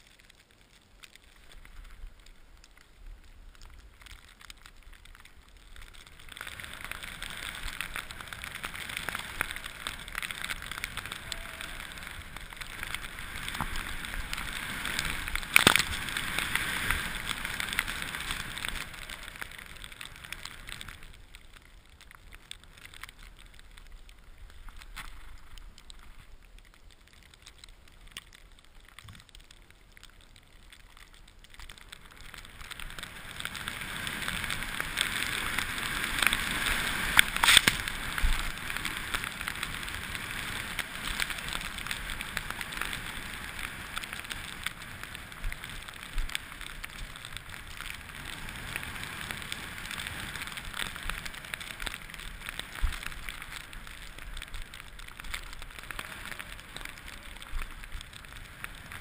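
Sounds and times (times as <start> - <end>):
skis scraping over snow: 5.6 - 21.2, 31.9 - 59.0.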